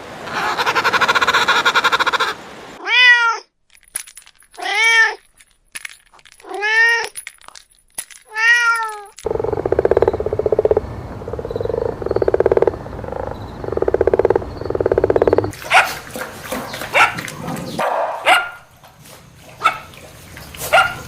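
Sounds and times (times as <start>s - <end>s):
dog barking: 15.6s - 16.0s, 16.9s - 18.7s, 19.6s - 19.9s, 20.7s - 21.0s.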